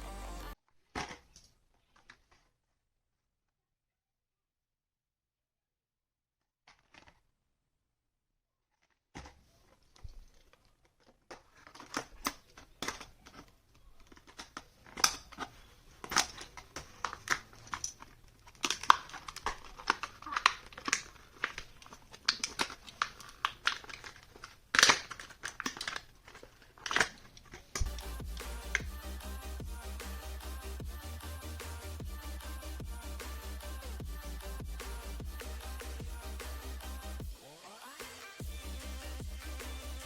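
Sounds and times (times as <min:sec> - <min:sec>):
blister packaging crinkling and tearing: 0:08.7 - 0:28.8.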